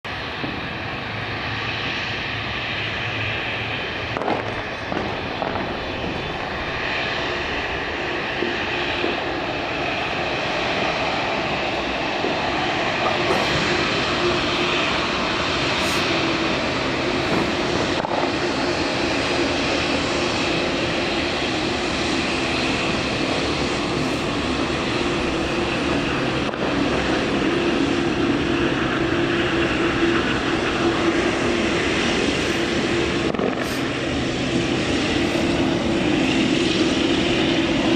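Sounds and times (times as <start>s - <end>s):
jet engines humming: 0.1s - 37.9s.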